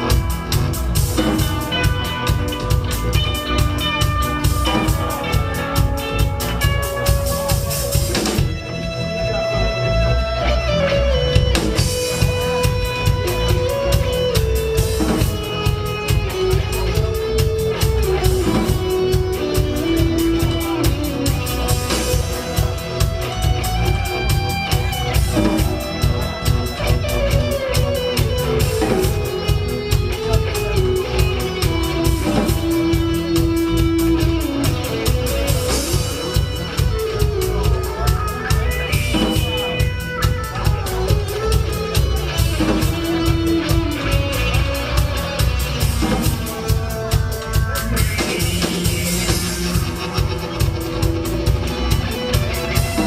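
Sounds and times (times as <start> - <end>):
drum kit dance beat: 0.0 - 8.6, 11.4 - 53.0
bass: 0.0 - 53.0
guitar melody: 0.0 - 53.0.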